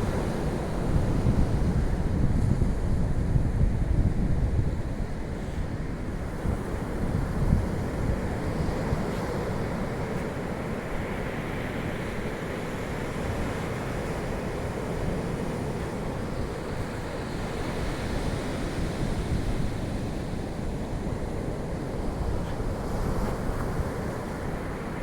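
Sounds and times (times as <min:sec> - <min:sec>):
wind buffeting microphone: 0:00.0 - 0:11.2
ocean surf washing ashore: 0:00.0 - 0:25.0.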